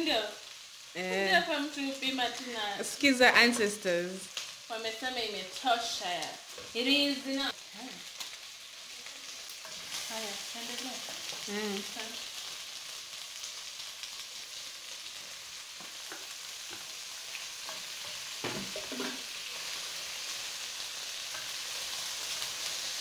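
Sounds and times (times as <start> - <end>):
food sizzling in a pot: 0.0 - 23.0
wooden spoon scraping a pot: 17.6 - 19.3.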